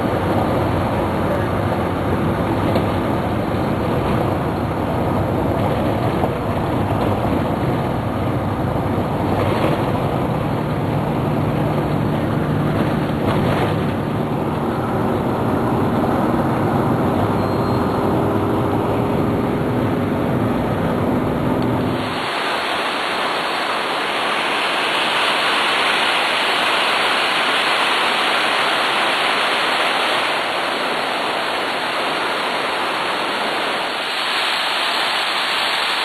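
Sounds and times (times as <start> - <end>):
waterfall rushing: 21.9 - 36.0.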